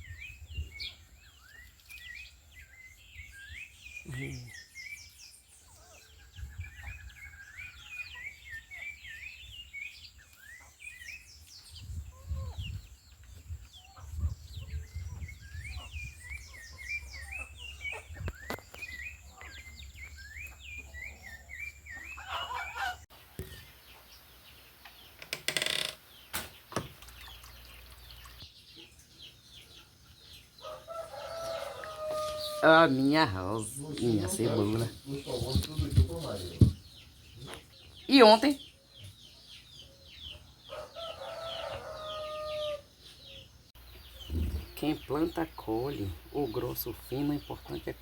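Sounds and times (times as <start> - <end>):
songbird chirping: 0.0 - 48.0
chickens clucking: 13.4 - 24.9, 27.0 - 48.0.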